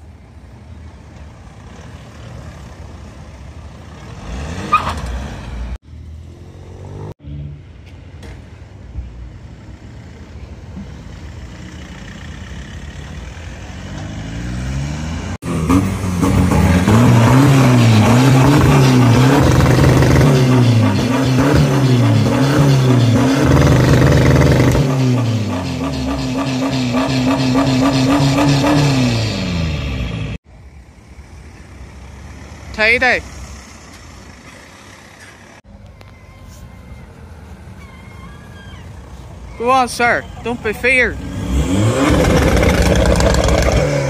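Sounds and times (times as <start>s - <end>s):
engines idling and moving: 0.0s - 44.0s
car engine revving: 13.2s - 30.4s, 41.0s - 44.0s.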